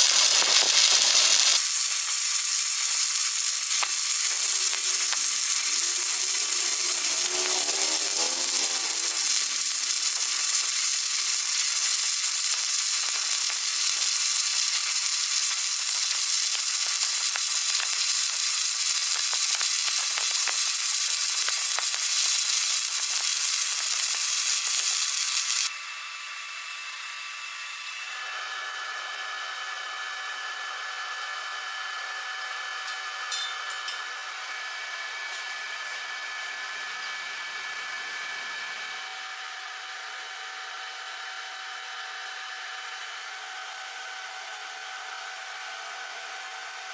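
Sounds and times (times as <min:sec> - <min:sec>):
welding arc crackling: 0:00.0 - 0:28.5
whirring hum: 0:00.0 - 0:46.9.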